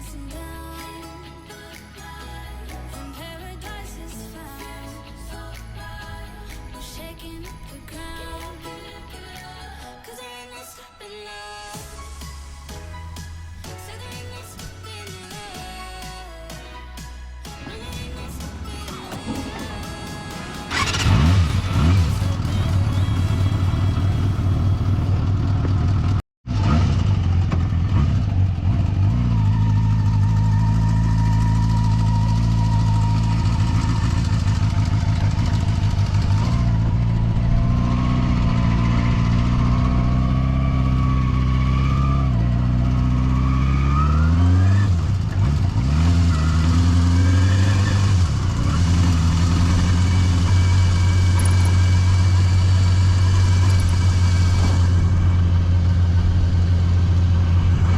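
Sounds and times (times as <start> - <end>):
motorcycle engine running: 17.6 - 57.9.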